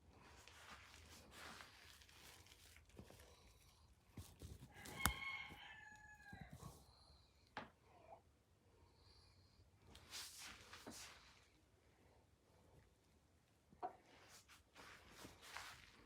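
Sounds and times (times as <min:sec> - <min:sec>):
chicken crowing: 0:04.7 - 0:06.8.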